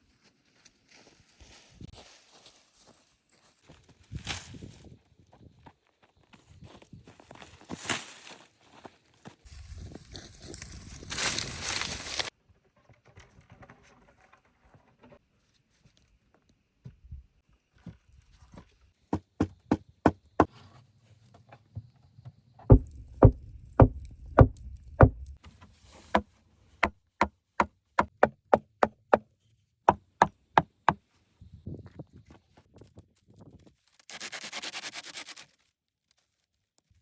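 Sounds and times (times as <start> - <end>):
dull thud: 22.7 - 25.4
tool knocking on wood: 22.7 - 25.4, 28.0 - 29.2.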